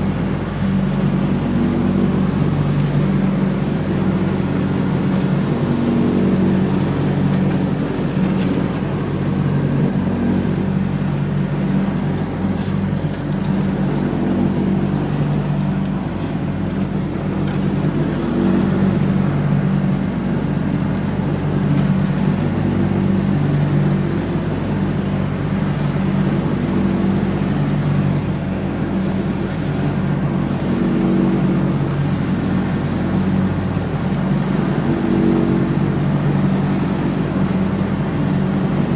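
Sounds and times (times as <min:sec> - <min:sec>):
riding mower engine running: 0:00.0 - 0:38.9.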